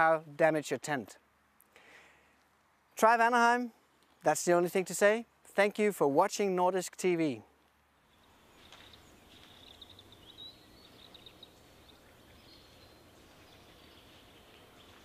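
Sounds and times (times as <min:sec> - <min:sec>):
small bird twittering: 0:08.1 - 0:15.0.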